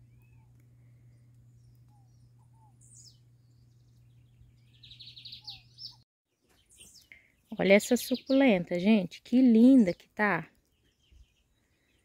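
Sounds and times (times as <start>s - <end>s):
faint bird chirps: 0.0s - 8.5s
bird trill: 0.1s - 8.6s.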